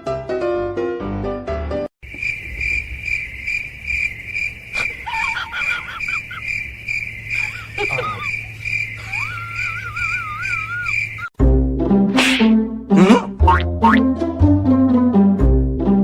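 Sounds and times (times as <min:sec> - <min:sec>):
insects chirping trill: 0:02.0 - 0:11.4
short wavering calls: 0:02.2 - 0:11.3.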